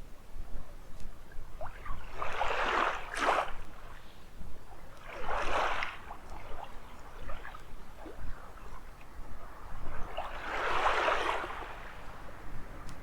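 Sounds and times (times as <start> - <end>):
small waves washing onto beach: 5.0 - 13.0.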